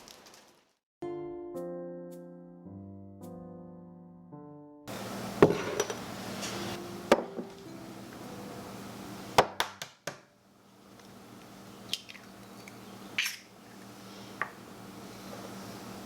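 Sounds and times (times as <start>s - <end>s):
dishes and utensils clinking: 5.4s - 7.6s.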